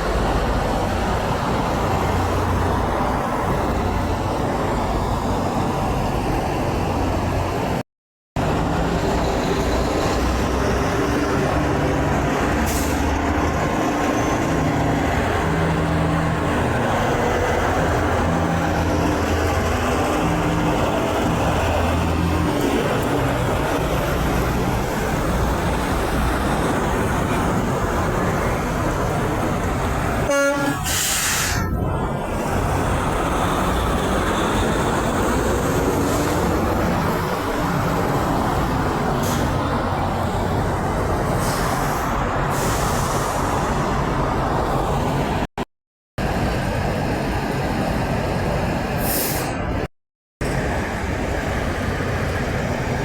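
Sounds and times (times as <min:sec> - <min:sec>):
road traffic with trucks: 0:00.0 - 0:53.0
truck air horn toot: 0:30.2 - 0:31.6.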